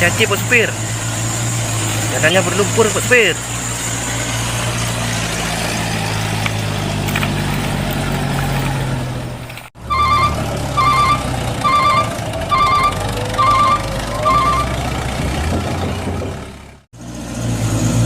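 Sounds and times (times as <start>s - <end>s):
truck engine running: 0.0s - 18.0s
pulsed electronic beep: 9.9s - 14.8s.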